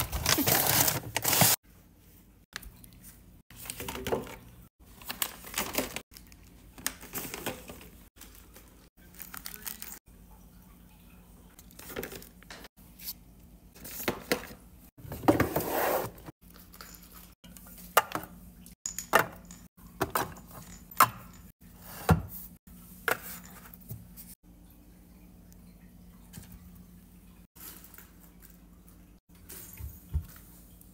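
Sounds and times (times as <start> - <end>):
packaging rustling and crinkling: 0.0 - 1.6, 4.9 - 10.0.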